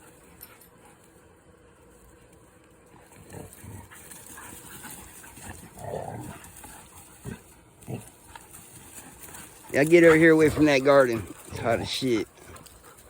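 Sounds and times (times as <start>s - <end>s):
dogs play-fighting vocalizing: 2.8s - 13.0s.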